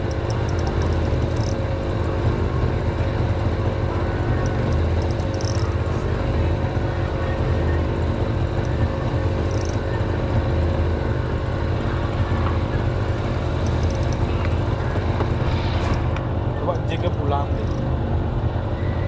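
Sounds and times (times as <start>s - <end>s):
faint high ticks: 0.0s - 1.6s, 4.4s - 5.7s, 9.5s - 9.8s
engine droning: 0.0s - 19.0s.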